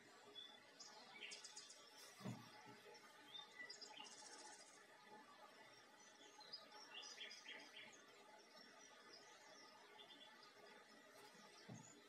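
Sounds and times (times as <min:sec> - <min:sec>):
birds chirping: 0:00.2 - 0:04.8, 0:05.5 - 0:12.0
soft low thump: 0:02.2 - 0:02.6.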